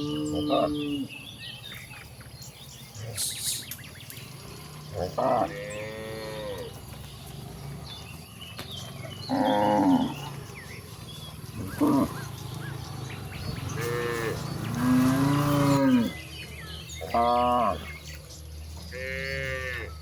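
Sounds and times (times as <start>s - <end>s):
cows mooing: 0.0s - 1.1s, 4.2s - 8.2s, 8.8s - 16.2s, 17.0s - 17.9s, 18.9s - 20.0s.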